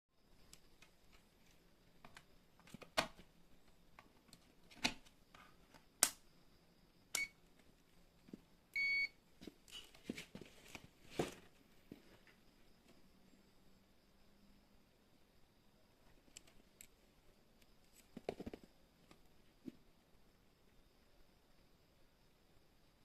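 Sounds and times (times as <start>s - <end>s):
sharp clicks: 6.0s - 6.2s
washing machine electronic beep: 7.2s - 7.4s, 8.8s - 9.2s.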